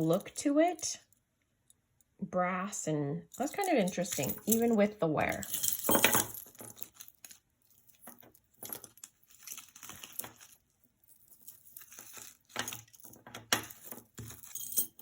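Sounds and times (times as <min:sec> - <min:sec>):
jewelry crinkling and rustling: 0:03.3 - 0:15.0.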